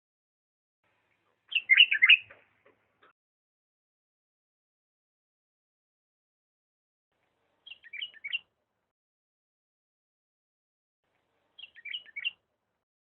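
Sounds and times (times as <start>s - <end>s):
bird whistled song: 1.5s - 2.3s, 7.6s - 8.5s, 11.6s - 12.4s.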